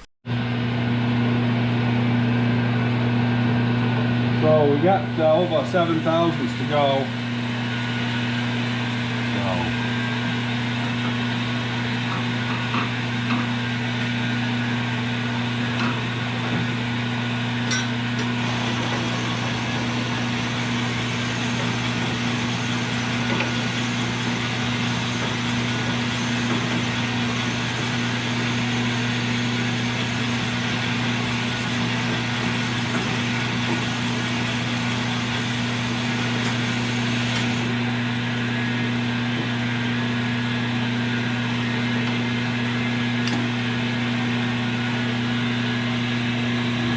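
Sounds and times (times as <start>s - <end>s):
honing machine grinding hiss: 18.2s - 37.7s.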